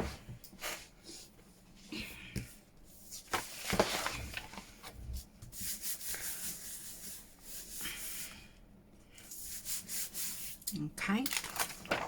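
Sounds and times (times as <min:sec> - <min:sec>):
paper rustling and rubbing: 0:03.0 - 0:08.3, 0:11.3 - 0:12.0.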